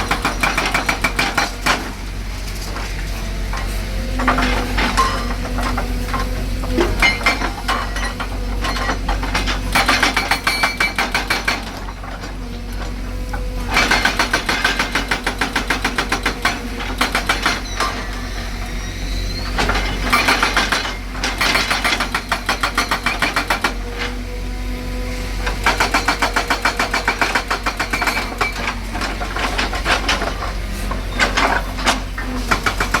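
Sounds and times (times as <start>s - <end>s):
hydraulic breaker hammering: 25.5s - 33.0s.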